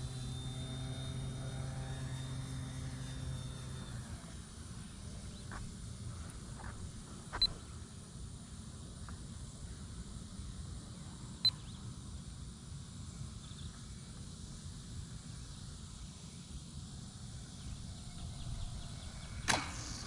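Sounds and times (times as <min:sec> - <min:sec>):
faint gliding whine: 0:00.0 - 0:20.0.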